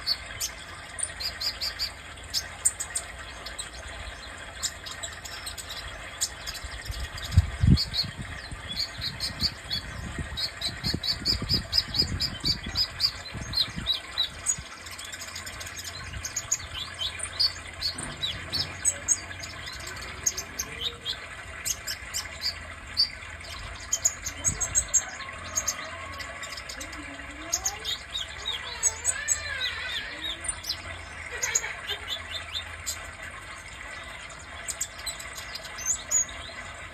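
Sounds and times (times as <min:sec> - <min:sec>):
bird singing high thin chirps: 0:04.6 - 0:30.8.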